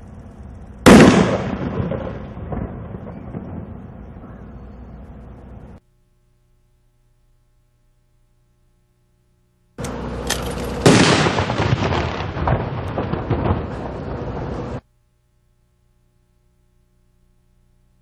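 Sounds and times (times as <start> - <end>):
fireworks bursting: 0.0 - 4.2, 9.8 - 14.8
sharp firework bang: 0.8 - 3.9, 10.8 - 14.2.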